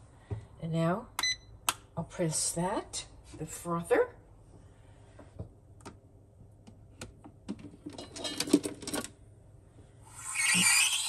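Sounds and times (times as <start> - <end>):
steam wand hissing: 10.1 - 11.0.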